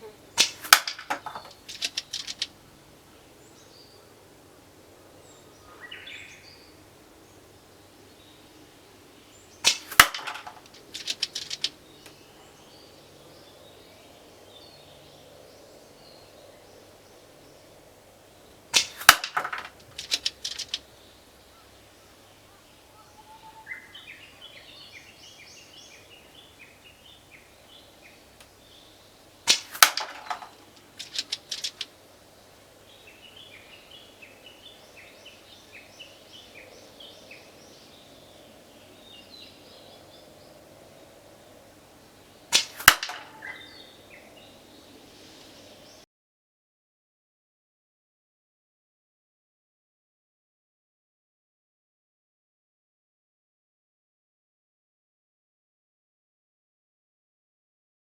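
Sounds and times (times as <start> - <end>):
airsoft rifle shots: 0.4 - 2.0, 9.6 - 11.1, 18.8 - 20.3, 29.5 - 31.8, 42.5 - 43.6
small clicks: 0.4 - 2.6, 9.6 - 12.2, 18.8 - 20.9, 29.5 - 32.0
bird chirping faintly: 19.8 - 46.1.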